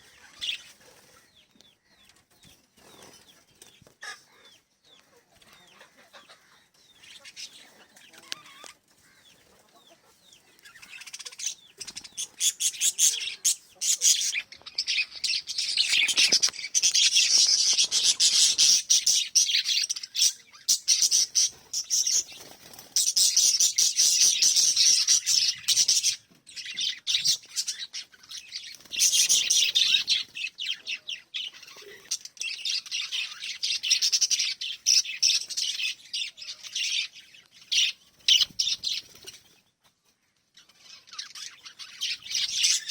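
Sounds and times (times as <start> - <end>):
parrots chattering: 10.6 - 22.3, 23.0 - 37.1.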